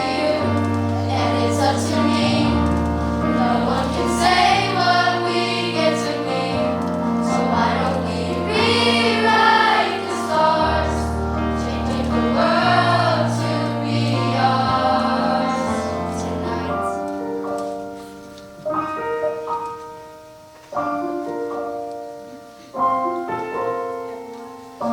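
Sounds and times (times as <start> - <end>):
choir singing: 0.0 - 17.4
musical accompaniment: 0.0 - 24.9.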